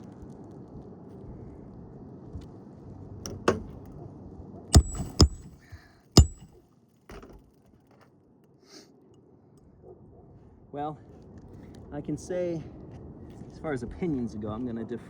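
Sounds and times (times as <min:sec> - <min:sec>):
metallic ring: 0:04.8 - 0:05.5, 0:06.2 - 0:06.5
sharp knocks and clicks: 0:04.8 - 0:05.6, 0:06.2 - 0:06.5.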